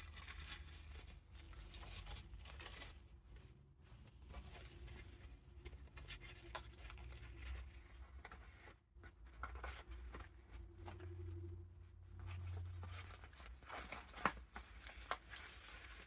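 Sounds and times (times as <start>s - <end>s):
faint low hum: 0.0s - 16.0s
paper pages rustling: 4.1s - 11.4s, 12.1s - 16.0s.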